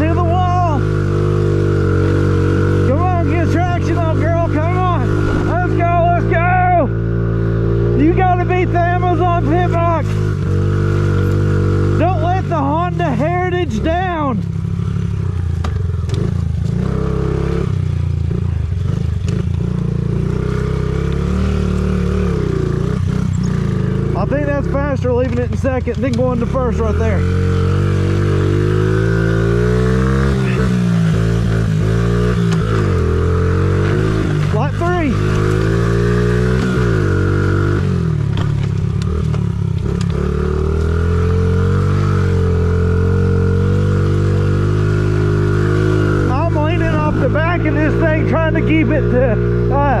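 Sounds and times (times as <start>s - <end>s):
motorbike engine revving: 0.0s - 50.0s
bike knocks and clatter: 38.3s - 40.2s.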